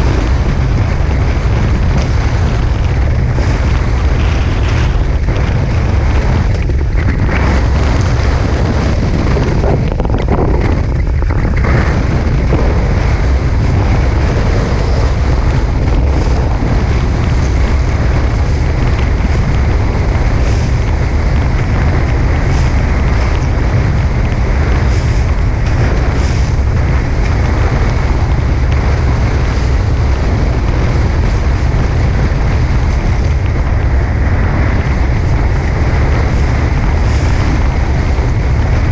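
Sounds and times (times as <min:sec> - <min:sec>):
water rushing past boat hulls: 0:00.0 - 0:38.9
wind buffeting microphone: 0:00.0 - 0:38.9.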